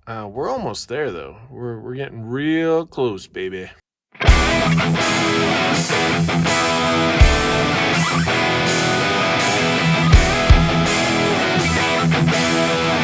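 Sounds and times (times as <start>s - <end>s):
rock music: 4.2s - 13.0s.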